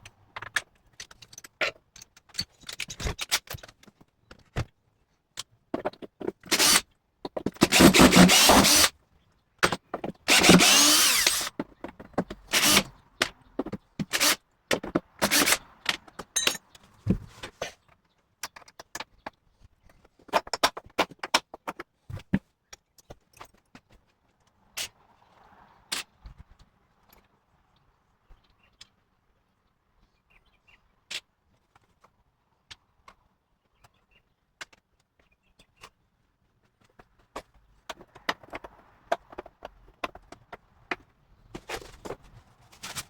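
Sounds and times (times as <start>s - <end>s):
metal parts clicking and clinking: 0.4s - 3.9s, 16.3s - 16.8s.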